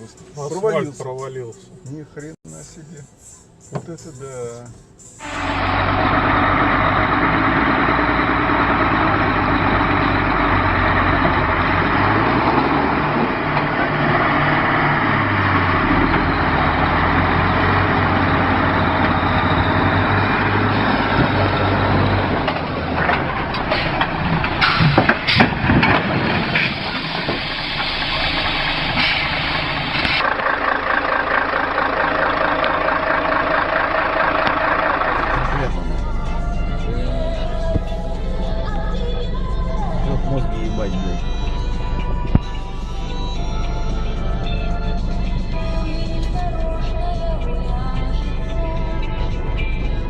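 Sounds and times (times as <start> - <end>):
vehicle engine running inside: 1.6 - 50.0
sharp knocks and clatter: 22.4 - 28.2.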